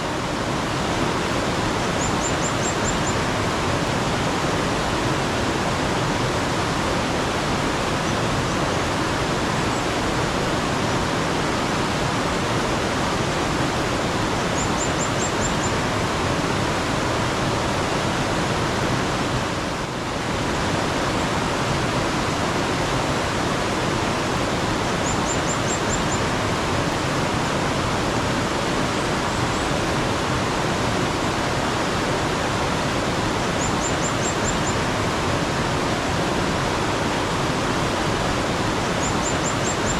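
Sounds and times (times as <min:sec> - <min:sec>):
mountain stream water rushing: 0:00.0 - 0:39.9
bird chirping: 0:02.0 - 0:03.2, 0:14.6 - 0:15.8, 0:25.0 - 0:26.2, 0:33.6 - 0:34.8, 0:39.0 - 0:39.9.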